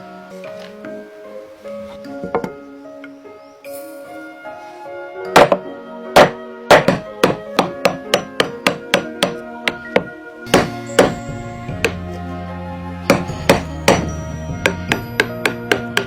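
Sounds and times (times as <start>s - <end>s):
background music: 0.0s - 16.0s
hammer strikes: 5.3s - 12.0s, 13.1s - 16.0s.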